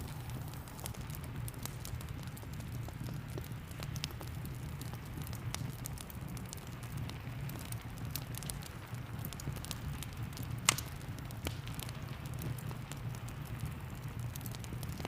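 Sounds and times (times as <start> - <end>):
wood fire crackling: 0.0 - 15.0
sharp pop of fire: 10.6 - 11.9.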